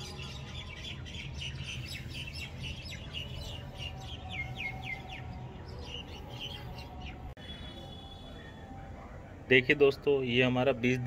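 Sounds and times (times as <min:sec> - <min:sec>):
small birds chirping: 0:00.0 - 0:08.5.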